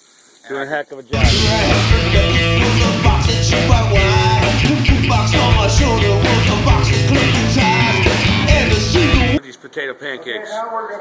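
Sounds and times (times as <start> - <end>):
loud rock music: 1.2 - 9.4
person singing: 1.2 - 9.4.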